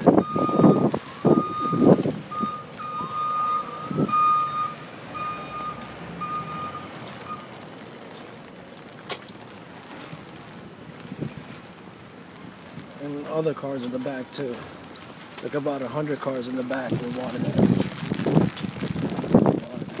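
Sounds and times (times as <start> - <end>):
reversing alarm beeping: 0.1 - 7.5.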